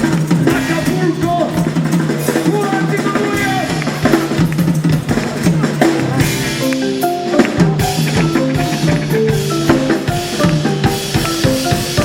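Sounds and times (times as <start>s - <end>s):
drum kit beat: 0.0s - 12.0s
repeating bass line: 5.0s - 12.0s
short melodic notes: 6.0s - 12.0s.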